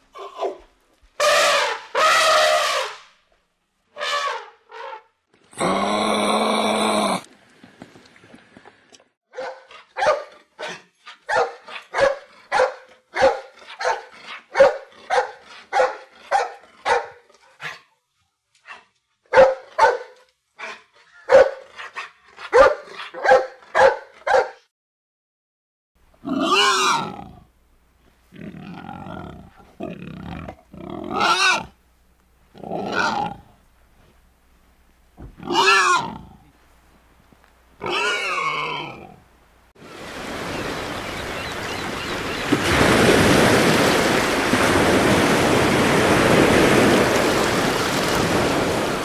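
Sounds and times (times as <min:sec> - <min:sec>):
dog barking: 0:09.3 - 0:17.8, 0:19.3 - 0:24.6
wild boar harsh calls: 0:26.2 - 0:27.5, 0:28.3 - 0:31.8, 0:32.6 - 0:33.5, 0:35.4 - 0:36.5, 0:37.8 - 0:39.2.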